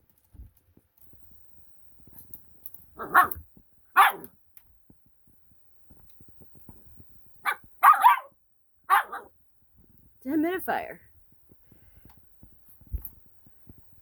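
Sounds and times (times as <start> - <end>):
puppy barking: 3.0 - 3.4, 4.0 - 4.3, 7.4 - 9.3.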